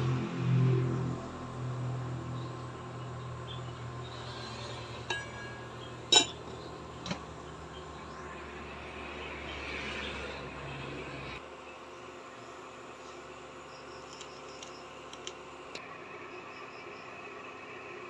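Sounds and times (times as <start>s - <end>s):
kitchenware clinking: 5.0s - 7.2s.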